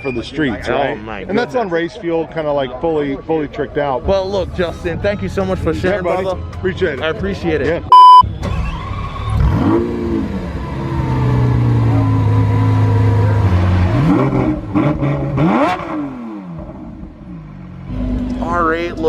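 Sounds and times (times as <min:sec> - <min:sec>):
car engine revving: 0:09.4 - 0:18.9.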